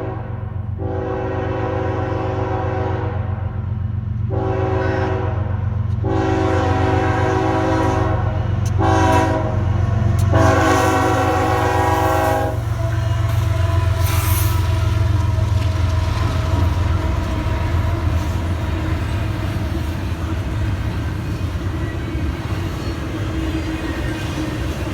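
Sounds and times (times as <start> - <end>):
locomotive air horn blasts: 0.0 - 3.4, 4.3 - 18.6
train rumble: 0.0 - 24.9.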